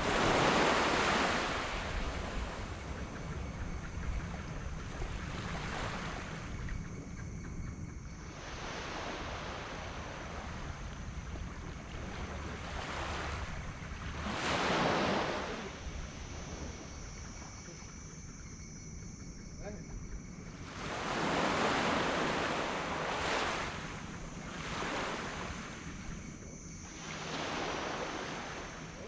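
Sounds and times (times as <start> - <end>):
small waves washing onto beach: 0.0 - 3.2, 8.2 - 17.6, 20.6 - 29.0
wind rumble on microphone: 0.0 - 29.0.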